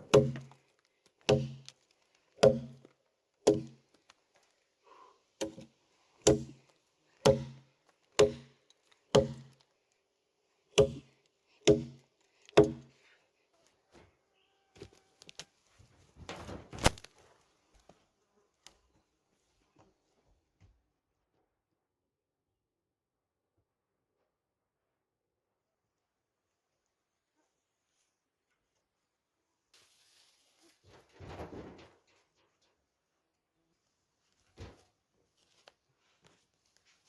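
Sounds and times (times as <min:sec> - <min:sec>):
heavy strikes on wood: 0:00.0 - 0:00.6, 0:01.3 - 0:01.7, 0:02.4 - 0:02.9, 0:03.5 - 0:03.8, 0:05.4 - 0:06.6, 0:07.2 - 0:07.6, 0:08.2 - 0:08.5, 0:09.1 - 0:09.6, 0:10.8 - 0:12.9.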